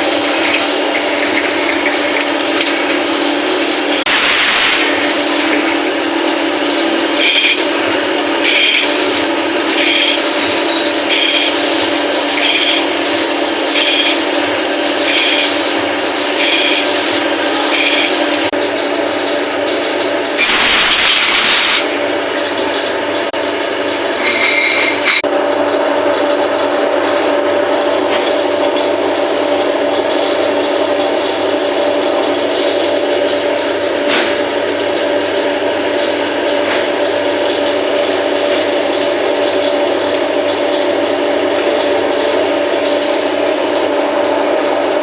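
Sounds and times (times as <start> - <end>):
machine tool running: 0.0 - 45.0
high-pitched ringing tone: 7.0 - 7.6, 8.4 - 8.9, 9.7 - 11.7, 12.3 - 12.9, 13.7 - 14.3, 15.0 - 15.6, 16.4 - 17.0, 17.6 - 18.3, 24.2 - 25.3.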